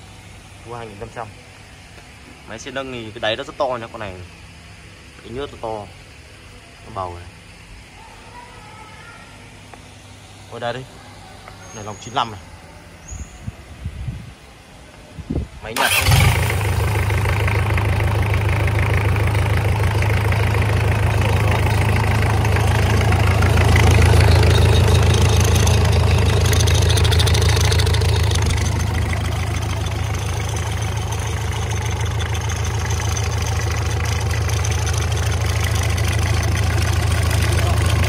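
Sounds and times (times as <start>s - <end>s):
diesel engine idling: 15.8s - 38.0s.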